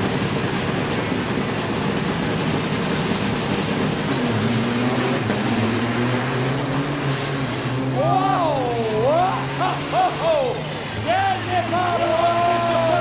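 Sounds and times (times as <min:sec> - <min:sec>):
diesel truck engines revving: 0:00.0 - 0:13.0.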